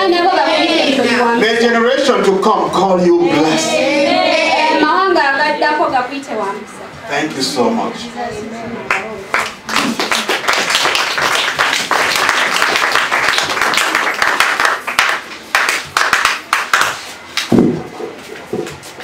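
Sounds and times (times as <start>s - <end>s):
congregation applauding: 8.9s - 17.5s.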